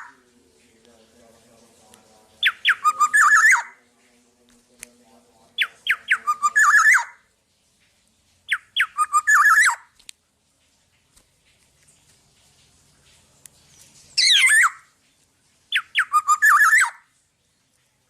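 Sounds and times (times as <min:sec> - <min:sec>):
oriole singing fluty notes: 0:00.0 - 0:07.3, 0:15.7 - 0:17.1.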